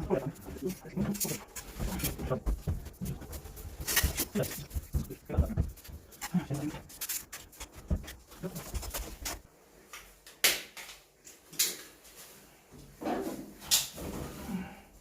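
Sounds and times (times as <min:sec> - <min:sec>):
knocks and clatter of handling: 0:00.0 - 0:09.4.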